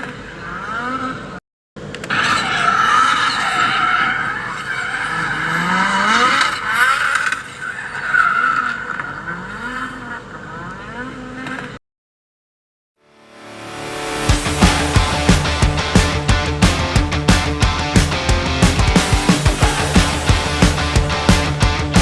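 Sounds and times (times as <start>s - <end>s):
tyres screeching: 2.0s - 9.8s
car engine revving: 2.1s - 7.7s, 14.0s - 22.0s.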